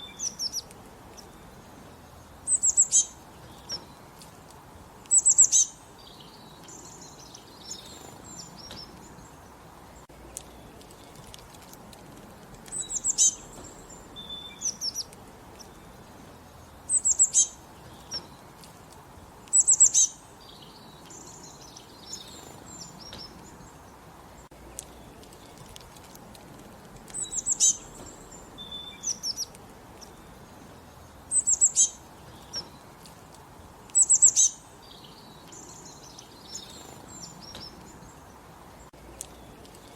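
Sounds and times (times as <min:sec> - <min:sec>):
low background hiss: 0:00.0 - 0:39.9
soft bird chirps: 0:00.0 - 0:39.9.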